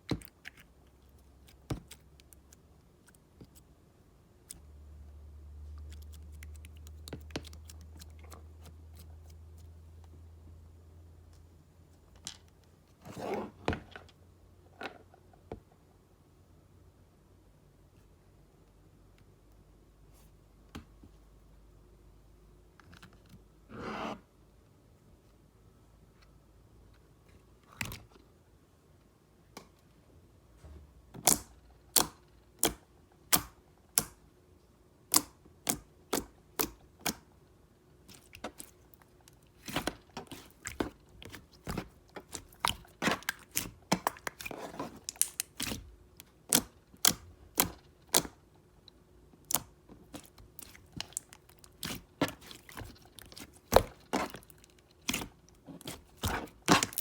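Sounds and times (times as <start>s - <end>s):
slime clicking and popping: 39.7s - 45.8s.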